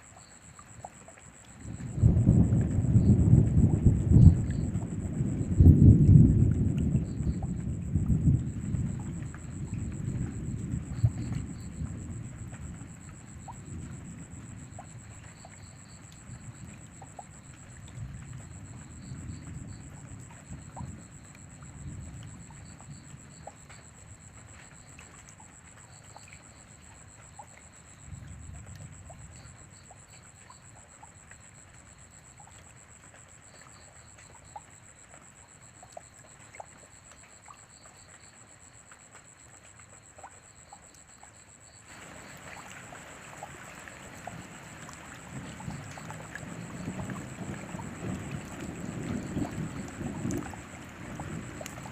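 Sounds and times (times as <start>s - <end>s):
rain falling: 0.0s - 37.4s, 41.8s - 51.9s
low thunder rumbling: 1.6s - 23.3s, 41.9s - 51.9s.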